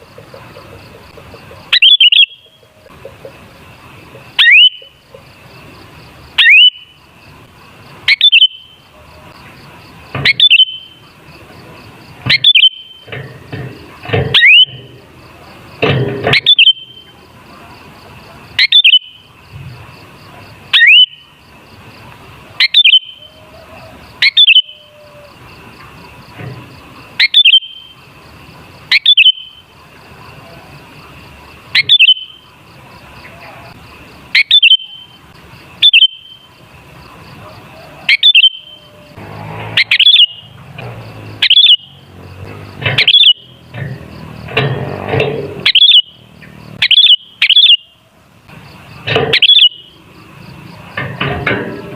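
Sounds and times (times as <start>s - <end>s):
bulbul sweeping calls: 0.0s - 3.3s, 4.1s - 5.3s, 6.3s - 7.0s, 8.0s - 9.5s, 10.1s - 11.0s, 12.2s - 13.1s, 14.3s - 14.8s, 16.3s - 17.2s, 18.6s - 19.2s, 20.7s - 21.2s, 22.5s - 25.3s, 27.2s - 28.0s, 28.8s - 29.6s, 31.7s - 32.4s, 33.2s - 35.2s, 35.8s - 36.5s, 37.4s - 39.1s, 39.7s - 40.6s, 41.2s - 42.1s, 42.8s - 43.6s, 45.6s - 46.2s, 46.8s - 48.0s, 49.3s - 50.0s.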